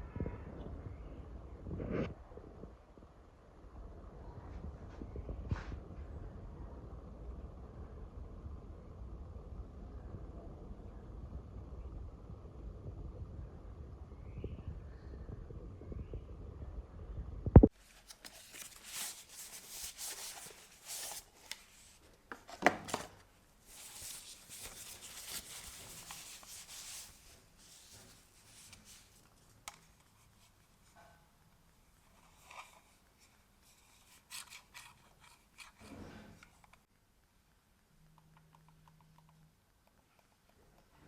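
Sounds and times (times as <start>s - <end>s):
rubbing and scraping: 17.8s - 23.0s, 23.6s - 29.3s.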